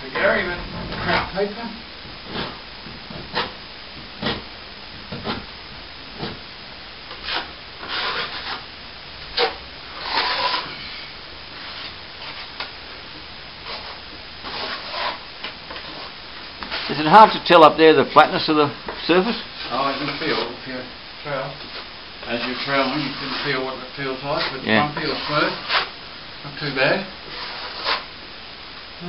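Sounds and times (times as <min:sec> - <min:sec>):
trowel scraping plaster: 0:07.1 - 0:08.6, 0:09.3 - 0:11.0, 0:13.6 - 0:16.1, 0:22.4 - 0:23.6, 0:24.3 - 0:25.9, 0:27.3 - 0:28.0.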